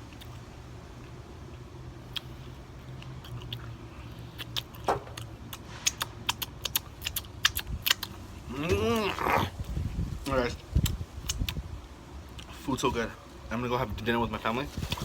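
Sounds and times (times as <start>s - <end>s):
mouth chewing food: 0.1s - 9.9s, 10.8s - 11.6s
wet lip smacks and clicks: 4.3s - 8.2s, 10.8s - 11.6s.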